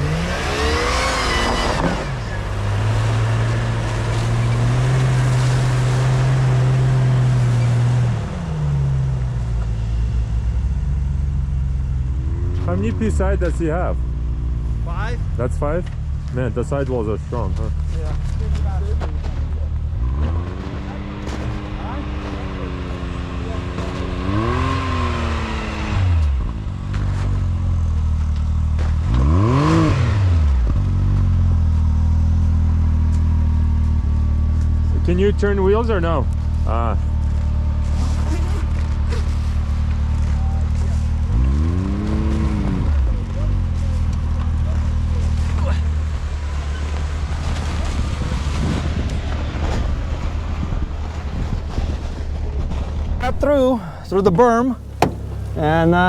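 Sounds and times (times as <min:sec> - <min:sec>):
off-road vehicle engine revving: 0:00.0 - 0:50.2, 0:52.6 - 0:56.0
car engine running under load: 0:42.0 - 0:56.0.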